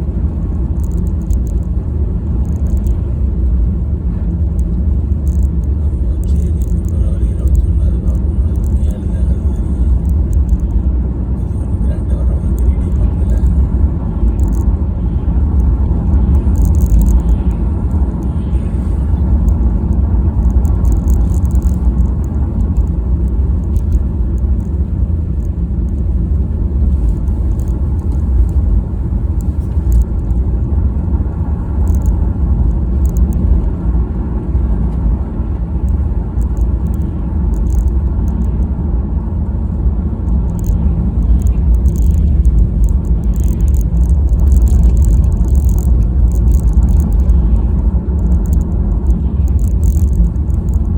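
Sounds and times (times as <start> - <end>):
car engine and road noise: 0.0 - 50.9
faint high ticks: 0.6 - 1.7, 2.4 - 3.1, 4.5 - 10.8, 15.5 - 26.1, 29.4 - 30.4, 31.8 - 33.7, 35.8 - 38.7, 40.3 - 50.9.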